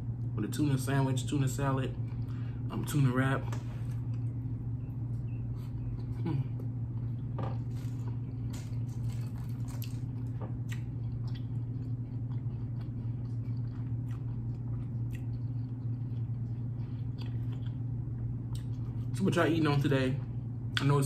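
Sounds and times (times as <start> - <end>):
steady low hum: 0.0 - 21.0
man chewing food: 3.6 - 19.2.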